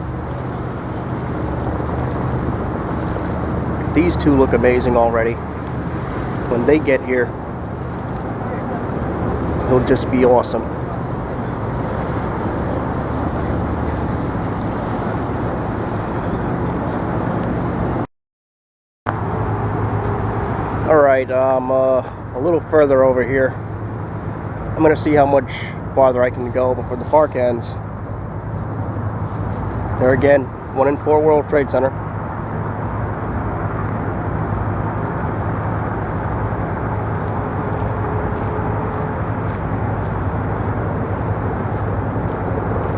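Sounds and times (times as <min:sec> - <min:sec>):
low engine drone: 0:00.0 - 0:18.1
wind rumbling on microphone: 0:00.0 - 0:18.1, 0:19.1 - 0:42.9.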